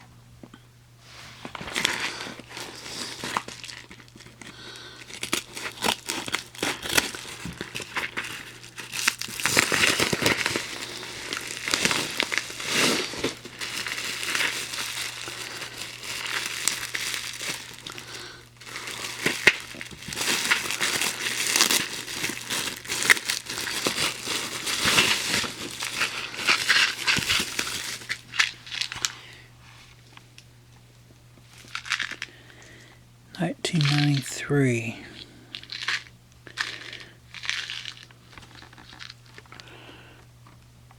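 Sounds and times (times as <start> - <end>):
candy packaging crinkling: 1.5 - 30.2, 31.5 - 32.8, 33.4 - 40.6.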